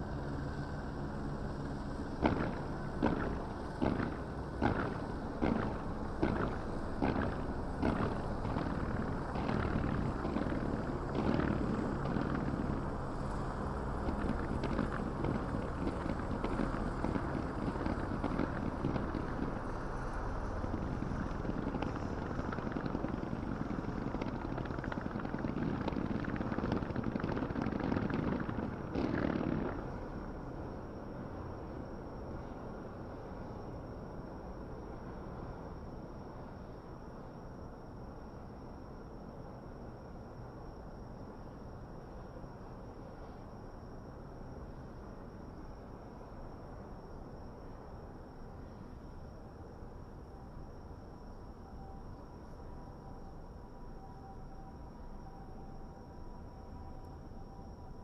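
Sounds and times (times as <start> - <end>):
low hum: 0.0 - 38.8
fireworks bangs and crackle: 2.2 - 12.9, 14.0 - 30.0.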